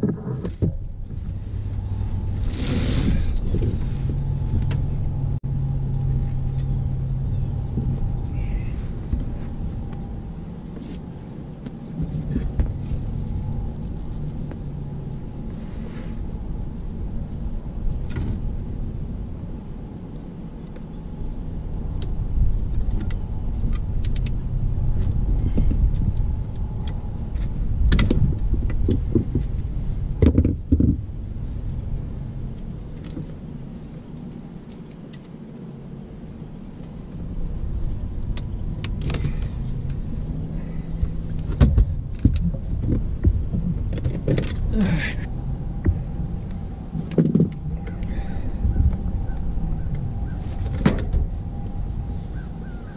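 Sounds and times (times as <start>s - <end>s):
knocks and rattles in a boat: 0.0s - 1.4s, 27.8s - 31.1s, 41.4s - 44.7s, 47.0s - 47.6s
low rumble: 0.0s - 34.8s, 35.6s - 52.9s.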